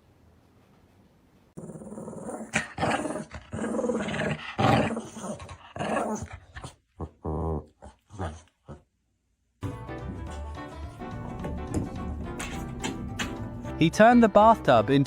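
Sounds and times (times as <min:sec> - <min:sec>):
dog growling: 0:01.6 - 0:08.9.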